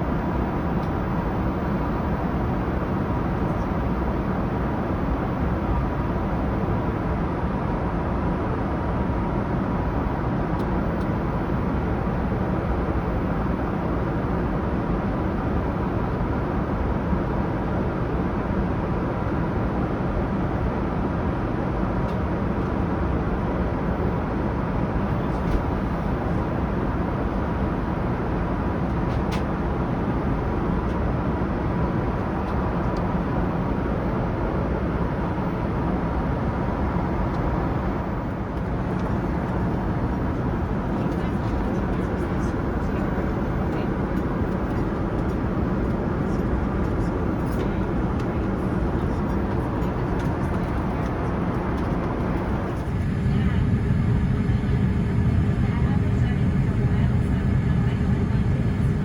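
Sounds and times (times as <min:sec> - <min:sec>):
airliner engine and airflow roar: 0:00.0 - 0:59.0
faint steady hum: 0:22.0 - 0:59.0.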